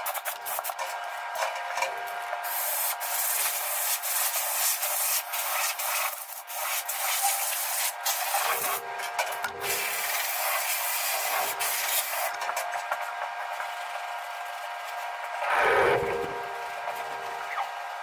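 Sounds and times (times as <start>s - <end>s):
abrasive scraping metal: 15.4s - 17.6s.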